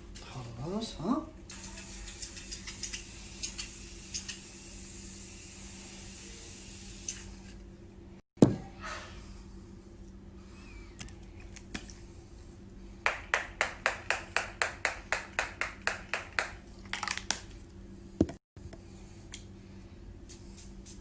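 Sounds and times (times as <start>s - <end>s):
sharp claps or taps: 13.1s - 16.6s.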